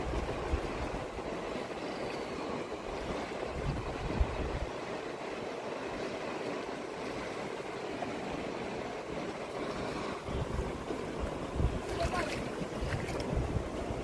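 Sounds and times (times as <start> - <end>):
wind buffeting microphone: 0.0 - 1.7, 2.6 - 5.3, 8.2 - 14.0
river water rushing: 0.0 - 14.0.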